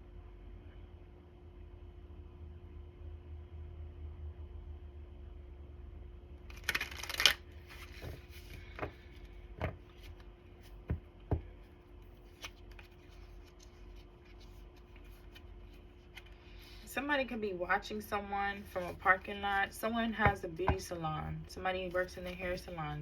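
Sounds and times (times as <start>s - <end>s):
cards shuffling: 6.5s - 11.4s, 12.0s - 16.8s, 18.6s - 19.5s, 21.9s - 22.8s.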